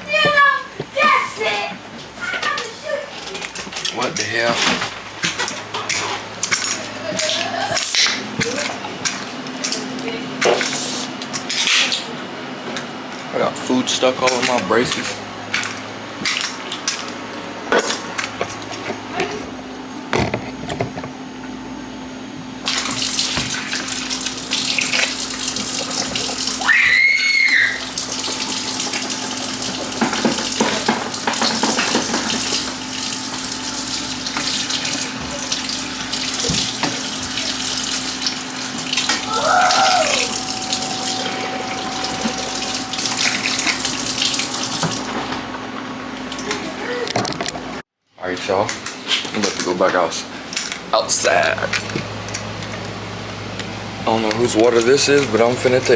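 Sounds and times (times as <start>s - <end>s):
tap water running into sink: 22.6s - 45.3s
steady low hum: 27.9s - 46.5s.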